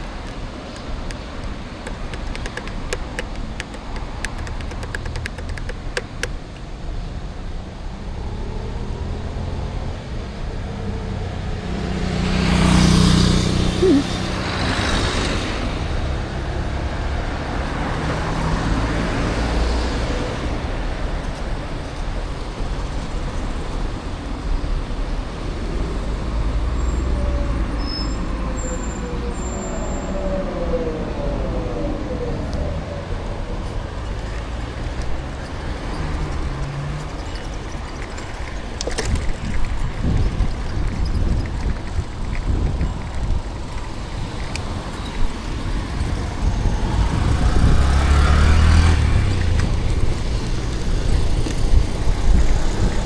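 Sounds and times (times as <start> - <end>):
city road traffic rumble: 0.0 - 53.0
vehicle passing close: 8.4 - 20.7, 44.2 - 53.0.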